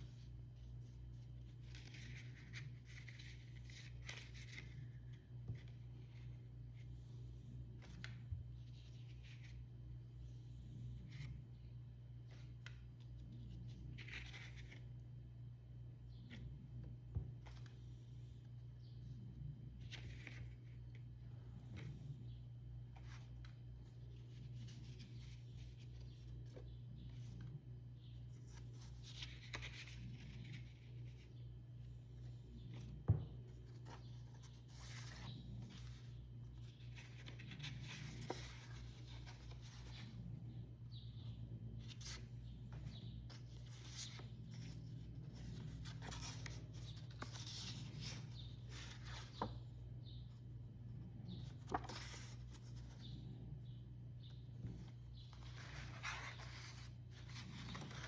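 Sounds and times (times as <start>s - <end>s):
paper pages rustling and turning: 0.0s - 6.9s, 7.7s - 9.8s, 11.0s - 11.6s, 12.2s - 15.1s, 19.0s - 22.1s, 22.8s - 50.5s, 51.2s - 53.2s, 54.5s - 58.0s.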